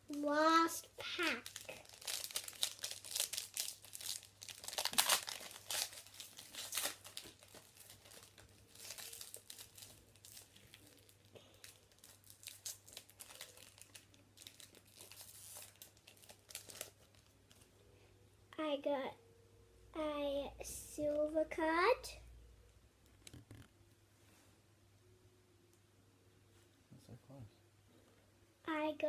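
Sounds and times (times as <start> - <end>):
card pack wrapper tearing and crinkling: 1.0 - 17.6.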